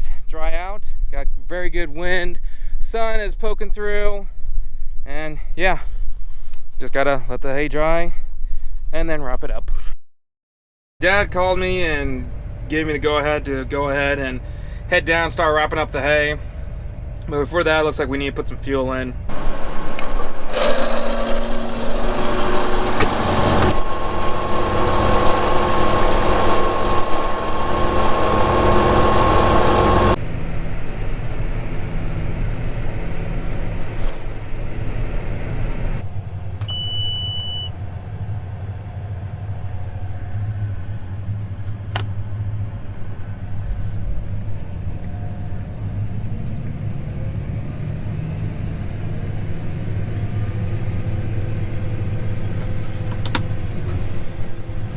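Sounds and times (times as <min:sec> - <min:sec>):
tractor engine humming: 0:19.3 - 0:30.2
short electronic beep: 0:36.7 - 0:37.8.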